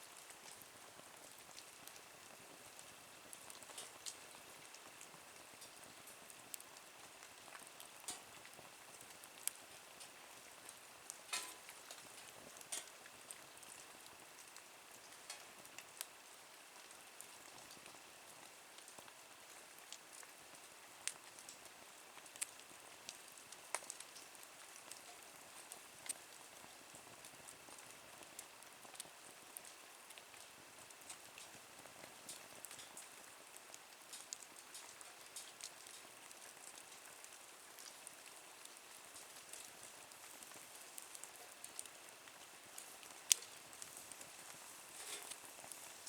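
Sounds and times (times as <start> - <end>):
low steady hiss: 0.0 - 46.0
wood fire crackling: 0.0 - 46.0.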